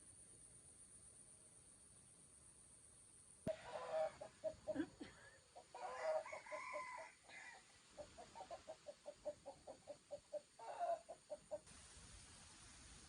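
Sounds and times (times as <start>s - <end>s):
chicken calling: 3.5s - 4.9s, 5.6s - 11.6s
chickens clucking: 3.5s - 6.1s, 8.0s - 11.7s.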